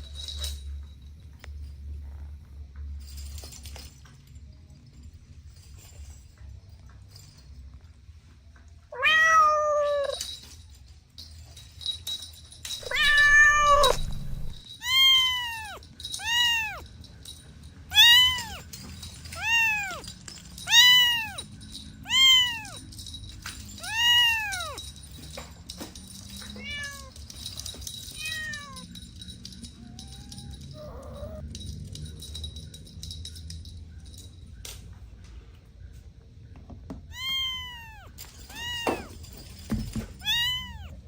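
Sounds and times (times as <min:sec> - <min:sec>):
cats meowing: 0:08.9 - 0:10.2, 0:12.8 - 0:16.9, 0:17.9 - 0:22.9, 0:23.7 - 0:24.8, 0:26.4 - 0:27.3, 0:28.1 - 0:31.5, 0:37.1 - 0:41.0.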